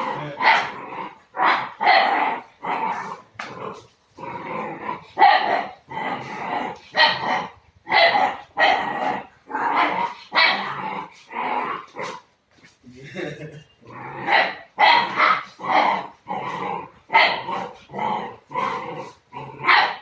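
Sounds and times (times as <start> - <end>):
puppy growling: 0.0 - 12.2, 13.8 - 20.0
puppy barking: 0.4 - 0.8, 1.4 - 2.5, 5.2 - 5.8, 6.9 - 10.8, 14.2 - 16.1, 17.1 - 17.8, 19.6 - 20.0.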